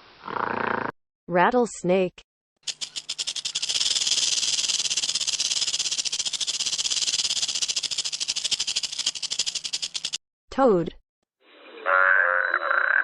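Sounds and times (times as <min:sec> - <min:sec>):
rattlesnake tail rattling: 0:02.6 - 0:10.2.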